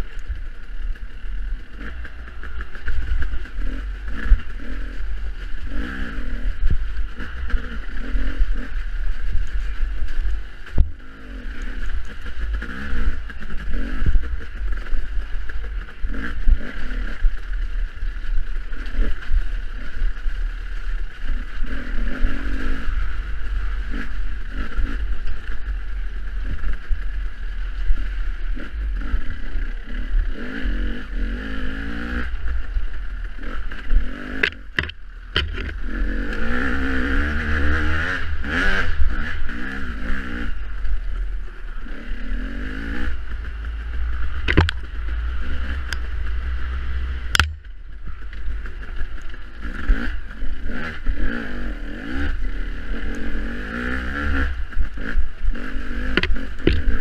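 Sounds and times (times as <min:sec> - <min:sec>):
wind rumble on microphone: 0:00.0 - 0:57.0
dirt bike engine revving: 0:00.8 - 0:57.0
sharp knocks: 0:34.4 - 0:35.7, 0:44.5 - 0:44.8.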